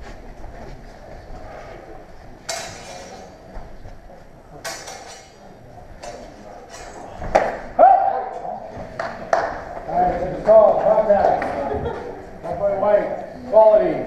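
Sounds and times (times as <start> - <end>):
sword blades clashing: 2.5 - 3.4, 4.6 - 5.4.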